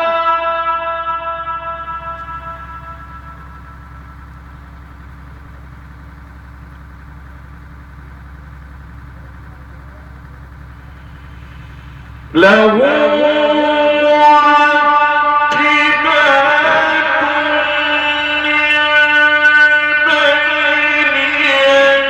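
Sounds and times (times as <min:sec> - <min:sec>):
man chanting melodically: 0:00.0 - 0:03.9, 0:12.0 - 0:22.0
low hum and hiss: 0:01.5 - 0:13.5.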